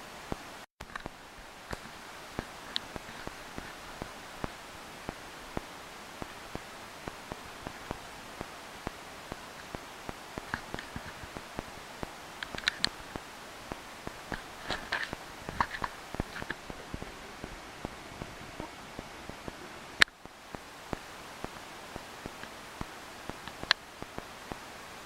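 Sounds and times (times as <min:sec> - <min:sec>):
steady hiss of rain: 0:00.0 - 0:25.0
raindrops tapping hard surface: 0:10.4 - 0:20.6.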